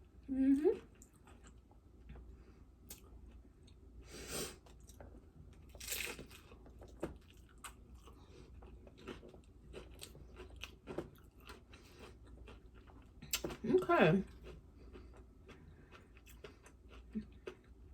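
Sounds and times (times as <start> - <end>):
chewing: 0.8 - 2.3, 4.6 - 13.6, 14.3 - 17.9
crunchy bites of fried shell: 5.7 - 7.8.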